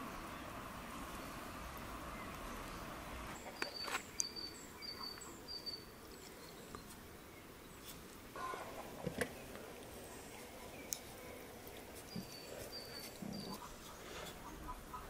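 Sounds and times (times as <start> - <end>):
open-air background hiss: 0.0 - 15.0
small bird chirping: 2.1 - 8.6, 11.7 - 15.0.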